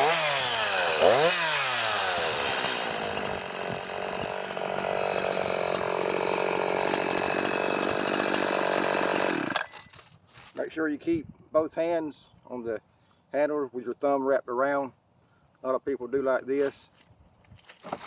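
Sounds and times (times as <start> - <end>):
chainsaw engine running: 0.0 - 9.7.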